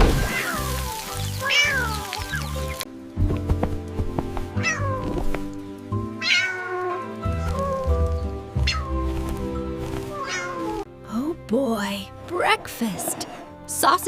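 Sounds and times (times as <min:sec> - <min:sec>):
background music: 0:00.0 - 0:14.0
cat meowing: 0:04.6 - 0:05.3, 0:06.2 - 0:09.2, 0:10.1 - 0:10.8.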